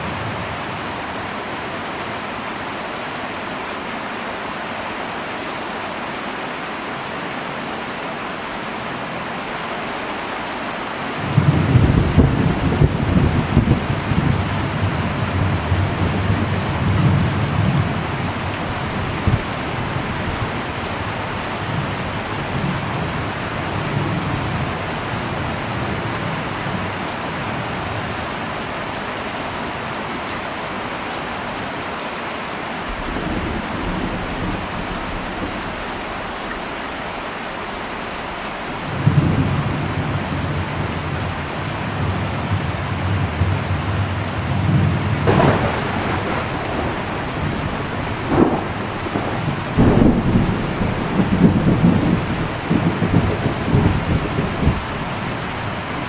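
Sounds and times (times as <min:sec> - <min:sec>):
heavy rain on a metal roof: 0:00.0 - 0:56.0
thunder rumbling: 0:11.2 - 0:28.3, 0:32.8 - 0:56.0.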